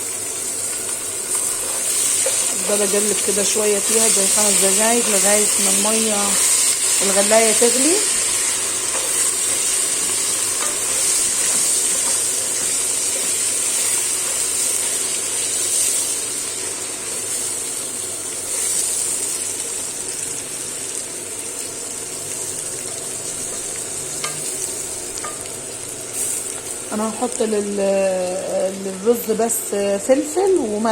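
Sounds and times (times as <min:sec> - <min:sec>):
rice sizzling in hot fat: 0:00.0 - 0:30.9.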